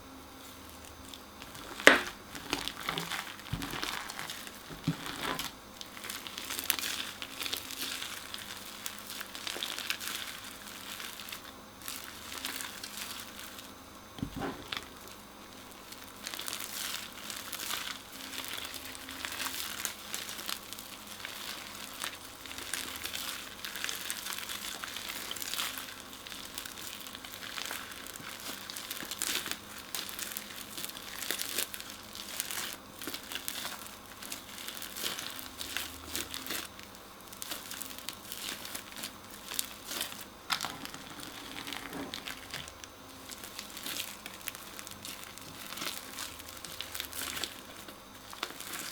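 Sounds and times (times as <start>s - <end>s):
crunchy slime crackling: 0.4s - 48.9s
dull thump: 14.2s - 14.7s.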